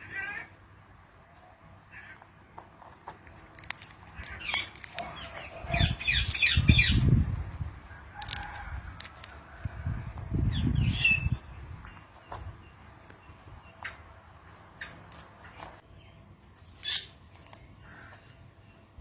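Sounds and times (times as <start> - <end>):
parrot calls and squawks: 0.0 - 0.6, 4.1 - 7.0, 16.8 - 17.2.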